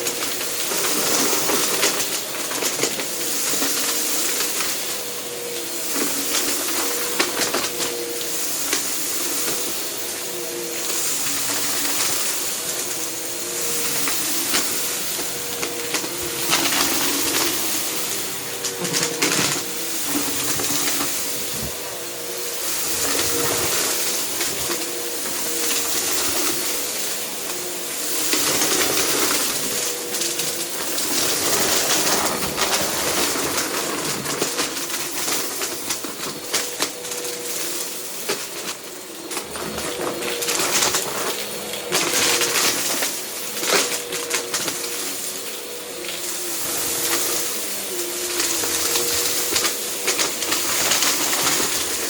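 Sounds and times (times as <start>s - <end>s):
vacuum cleaner running: 0.0s - 52.0s.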